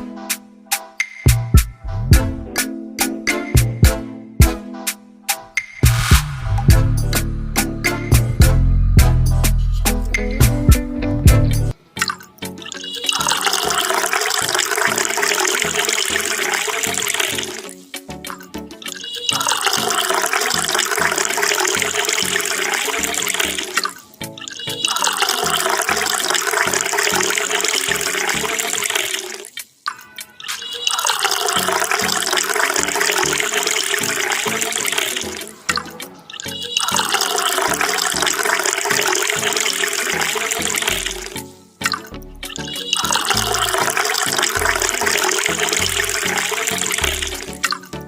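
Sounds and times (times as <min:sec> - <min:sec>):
background music with beat: 0:00.0 - 0:13.1, 0:17.4 - 0:20.0, 0:35.0 - 0:36.7, 0:41.0 - 0:43.8
water gushing from pump: 0:13.1 - 0:17.7, 0:19.3 - 0:24.0, 0:24.8 - 0:29.5, 0:30.5 - 0:35.8, 0:36.7 - 0:41.4, 0:42.6 - 0:47.6.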